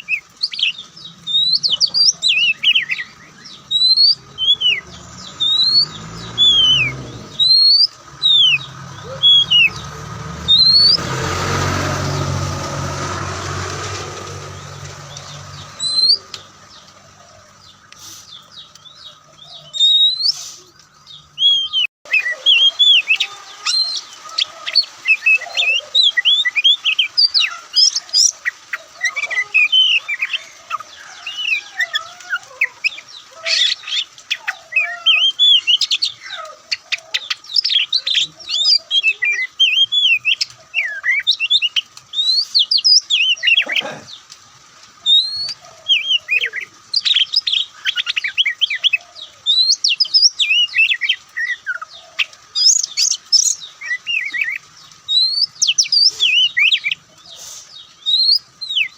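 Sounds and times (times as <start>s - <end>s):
bird singing whistles and trills: 0.0s - 9.9s, 19.6s - 20.4s, 21.3s - 24.1s, 45.1s - 51.9s, 52.6s - 57.0s, 58.0s - 58.9s.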